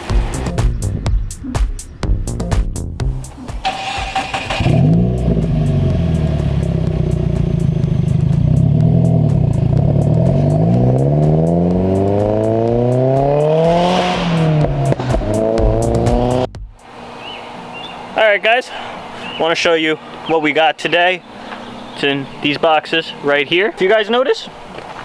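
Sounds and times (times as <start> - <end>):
car engine revving: 3.3 - 17.1.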